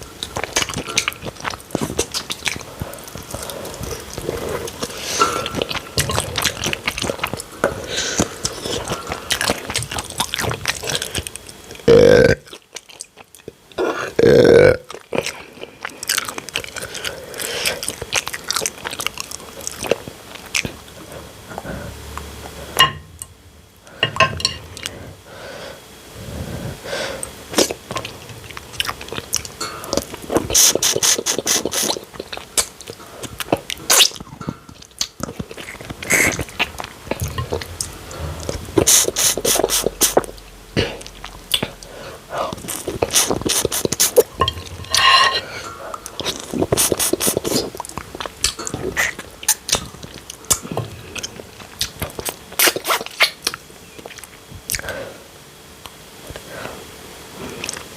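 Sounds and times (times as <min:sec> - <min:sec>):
wet chewing: 0:00.0 - 0:11.8, 0:12.4 - 0:13.7, 0:14.9 - 0:22.6, 0:27.2 - 0:55.0, 0:57.5 - 0:57.9
clicky mouth noises: 0:42.5 - 0:44.3.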